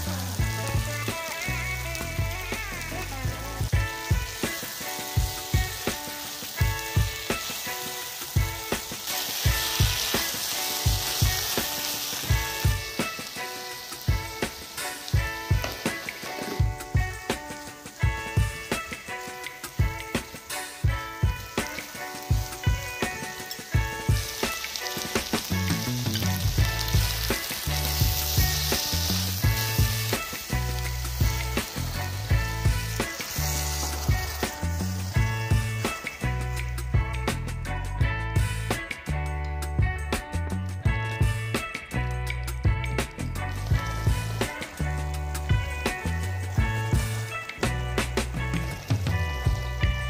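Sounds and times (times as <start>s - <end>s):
background music with beat: 0.0s - 50.0s
vegetables sizzling in oil: 0.0s - 50.0s
spatula scraping and knocking pan: 15.2s - 17.4s.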